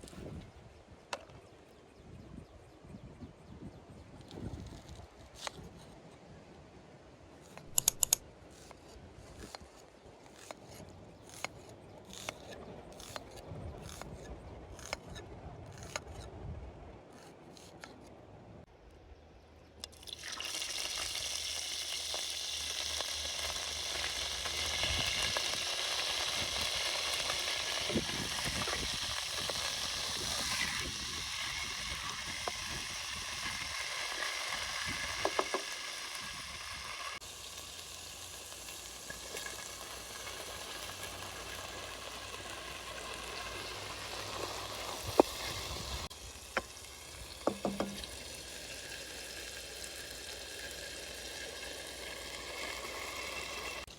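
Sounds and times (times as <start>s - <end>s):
utensil clicks: 7.5s - 8.2s
food sizzling in hot oil: 20.0s - 53.9s.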